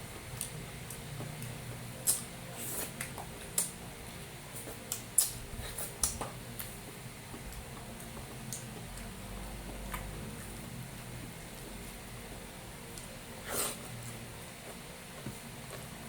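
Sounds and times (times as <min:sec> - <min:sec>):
low steady hum: 0:00.0 - 0:16.0
wet chewing and mouth smacks: 0:04.6 - 0:06.8.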